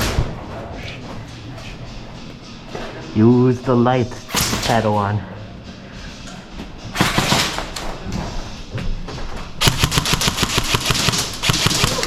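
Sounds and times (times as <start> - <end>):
airsoft guns firing: 9.6 - 12.0.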